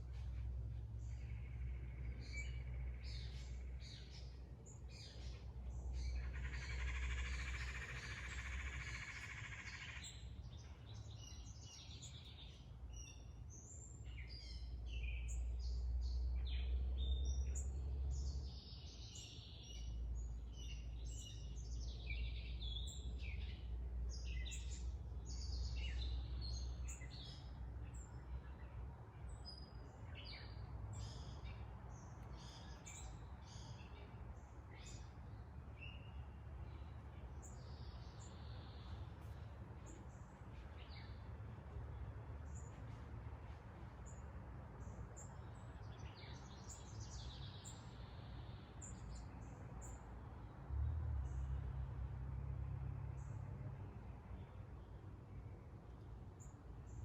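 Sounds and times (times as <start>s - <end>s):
low steady rumble: 0.0s - 18.8s
birds chirping and singing: 1.0s - 44.2s.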